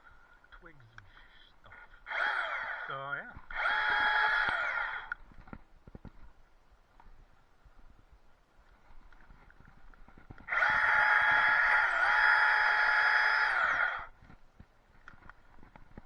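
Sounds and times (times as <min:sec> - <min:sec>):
chainsaw running: 0:02.0 - 0:05.1, 0:10.5 - 0:14.0.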